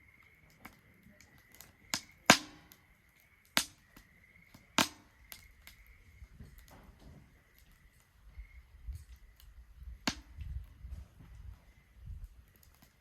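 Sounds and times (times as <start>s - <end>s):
wood fire crackling: 0.0s - 13.0s
sharp pops of fire: 0.3s - 13.0s.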